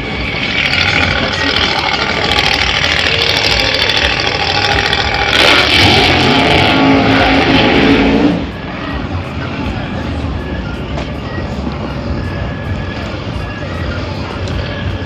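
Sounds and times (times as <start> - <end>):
car engine revving: 0.0 - 9.8.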